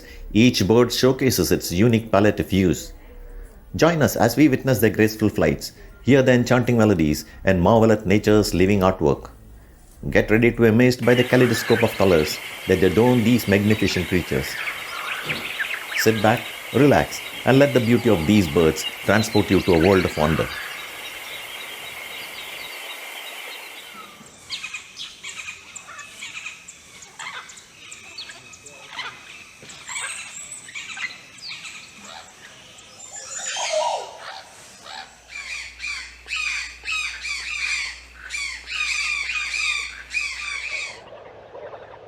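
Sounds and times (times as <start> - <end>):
wild birds chirping and squawking: 0.0 - 42.0.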